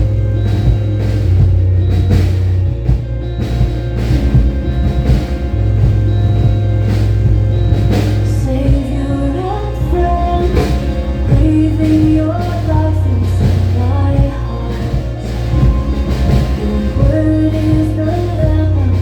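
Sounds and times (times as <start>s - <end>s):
song with bass and drums: 0.0s - 19.0s
person singing: 8.2s - 19.0s.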